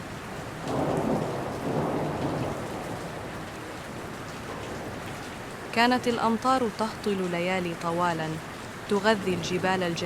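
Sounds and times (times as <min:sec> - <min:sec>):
steady rain: 0:00.0 - 0:10.0
thunder rumbling: 0:00.6 - 0:07.0.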